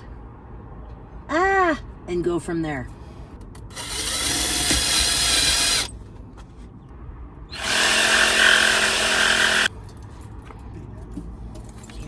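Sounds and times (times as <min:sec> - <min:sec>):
power drill driving screws: 0:03.7 - 0:05.9, 0:07.5 - 0:09.7.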